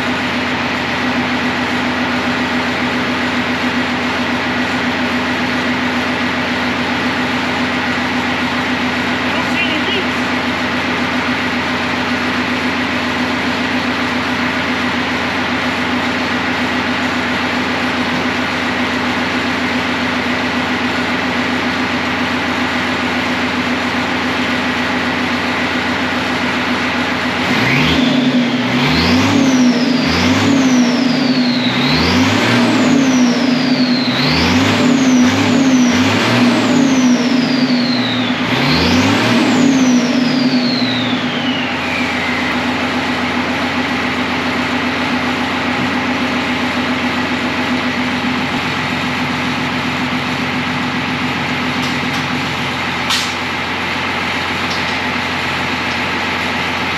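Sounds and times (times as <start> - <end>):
diesel truck engine idling and revving: 0.0 - 56.9
turbo whistle: 40.6 - 42.6.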